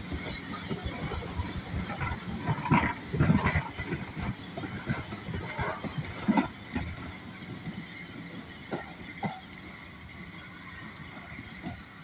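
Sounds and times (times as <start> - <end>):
train rumbling away on track: 0.0 - 12.0.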